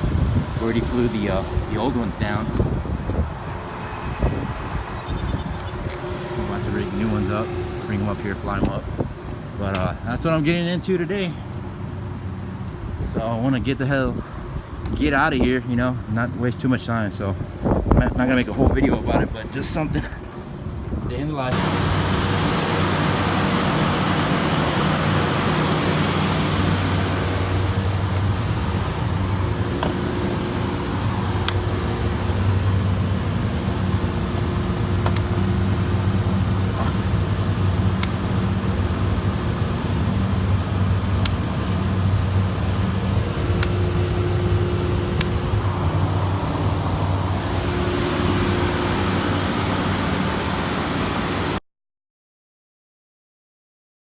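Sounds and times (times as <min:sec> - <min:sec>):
machinery drone: 0:00.0 - 0:10.2, 0:21.5 - 0:51.6.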